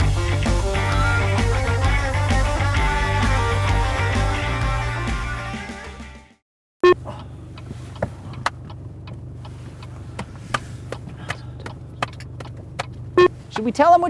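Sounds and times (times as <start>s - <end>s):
vehicle engine idling: 0.0s - 5.3s.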